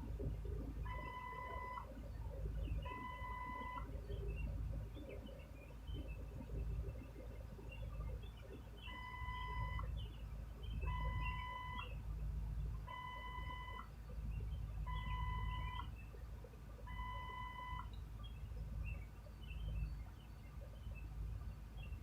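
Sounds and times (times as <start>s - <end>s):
electronic warning beeps: 0.2s - 4.2s, 8.8s - 10.0s, 10.7s - 12.0s, 12.8s - 13.9s, 14.9s - 16.0s, 16.9s - 18.0s.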